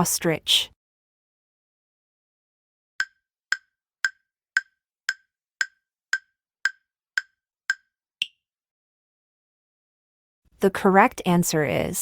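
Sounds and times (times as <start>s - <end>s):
wood-block-like timer ticks: 3.0s - 8.4s.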